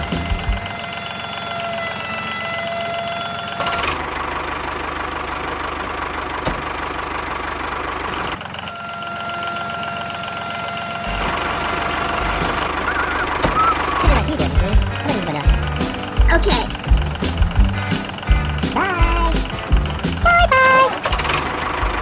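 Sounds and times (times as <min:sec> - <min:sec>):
small motor running: 0:00.0 - 0:04.1, 0:08.1 - 0:14.0.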